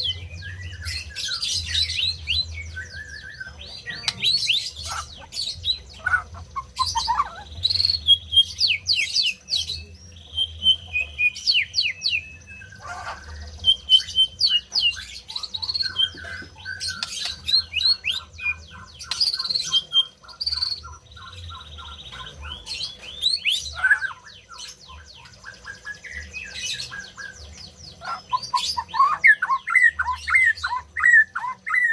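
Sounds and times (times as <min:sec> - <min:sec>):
bird singing whistles and trills: 0:00.0 - 0:31.9.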